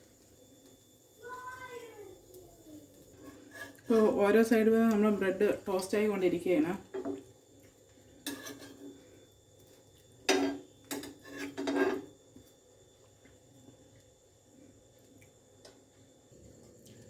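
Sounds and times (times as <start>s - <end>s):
metal spatula scraping griddle: 3.2s - 4.0s, 8.2s - 9.0s, 10.3s - 12.1s.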